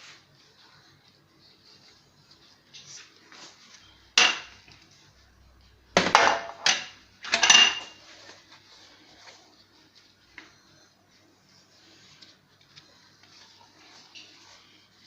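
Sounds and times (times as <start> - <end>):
baking tray clanking: 4.2 - 4.6.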